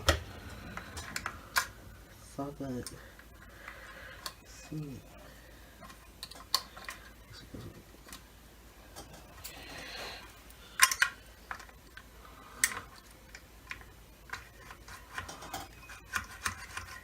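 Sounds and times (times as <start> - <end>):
plastic parts clicking: 5.8 - 7.2, 10.8 - 17.0.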